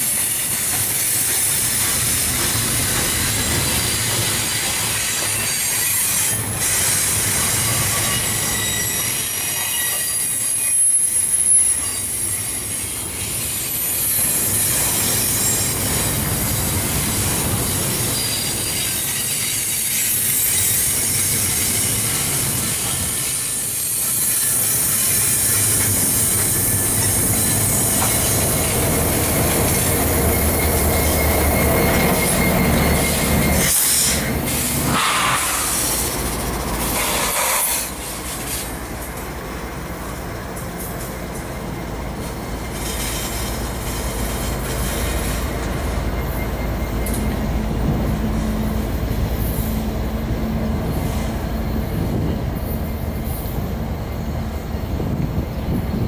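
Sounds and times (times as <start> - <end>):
high thin wheel squeal: 0.0 - 38.8
freight train rumble: 0.0 - 56.0.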